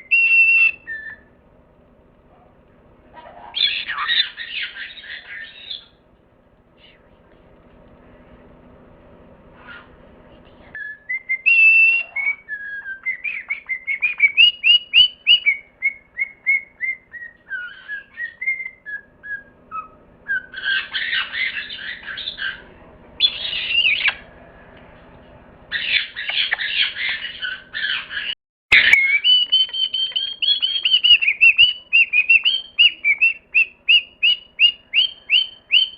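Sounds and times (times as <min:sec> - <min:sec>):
parrot whistling: 0:00.0 - 0:01.4, 0:03.2 - 0:06.0, 0:10.8 - 0:24.7, 0:25.7 - 0:35.9
parrot squawks: 0:03.1 - 0:06.0, 0:09.6 - 0:10.0, 0:10.8 - 0:24.4, 0:25.7 - 0:35.9.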